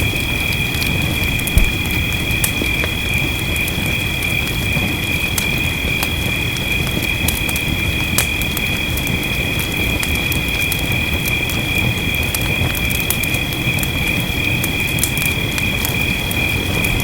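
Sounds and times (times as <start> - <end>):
rain hissing: 0.0 - 10.5
fireplace crackling and popping: 0.0 - 17.0
low rumble: 1.2 - 2.6.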